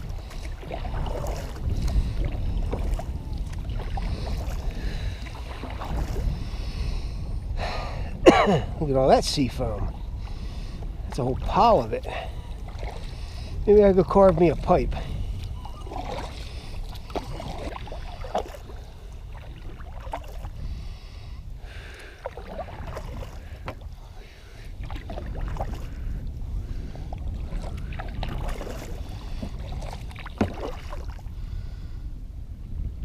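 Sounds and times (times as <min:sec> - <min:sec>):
paddle splashes: 0:00.0 - 0:07.0, 0:08.7 - 0:31.6
low rumble: 0:00.0 - 0:21.8.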